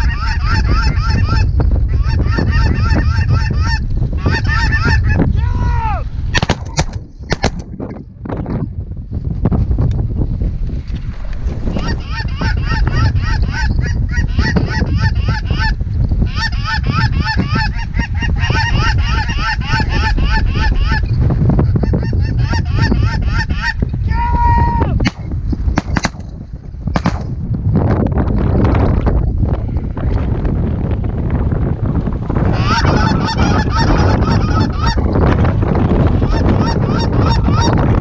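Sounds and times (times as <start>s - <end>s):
geese clucking and honking: 0.0s - 5.3s, 11.7s - 23.8s, 32.4s - 35.2s, 36.1s - 37.9s
wind rumble on microphone: 0.0s - 38.0s
shotgun blasts: 6.3s - 7.7s, 25.0s - 27.4s.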